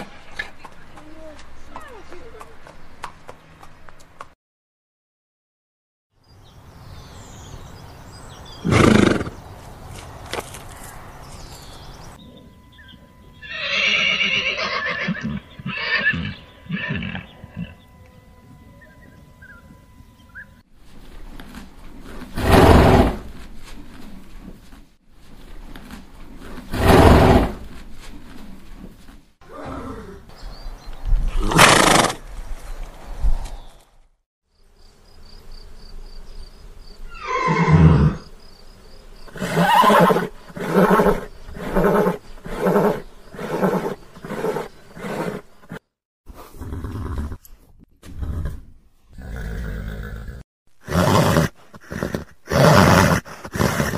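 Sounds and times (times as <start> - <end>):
horse neighing: 8.6 - 9.4, 13.4 - 17.8, 37.1 - 38.2, 39.4 - 45.4.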